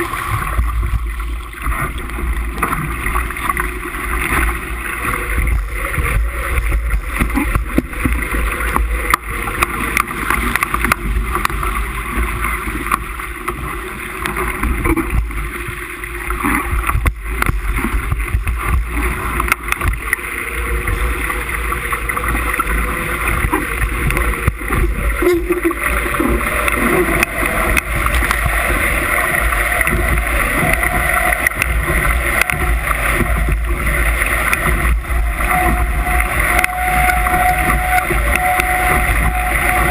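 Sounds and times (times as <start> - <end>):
rushing water: 0.0 - 39.9
wind buffeting microphone: 16.4 - 39.9.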